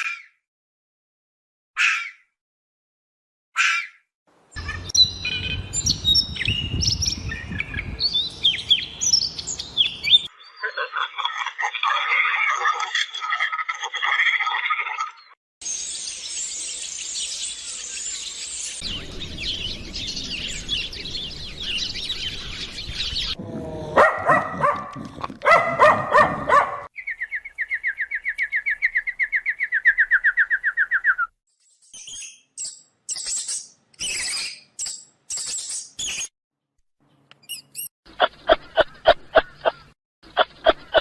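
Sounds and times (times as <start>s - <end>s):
birds chirping: 4.5s - 11.3s, 15.2s - 31.3s, 37.1s - 41.0s
bird trill: 4.6s - 11.0s, 15.6s - 23.4s, 25.6s - 36.3s
low bird calls: 18.8s - 31.3s.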